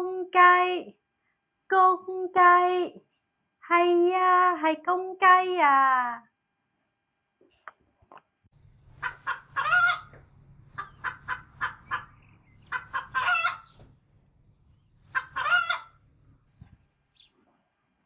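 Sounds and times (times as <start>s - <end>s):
low hum: 8.5s - 13.0s, 13.6s - 15.2s, 15.9s - 17.2s
chicken clucking: 9.0s - 13.8s, 15.0s - 16.0s.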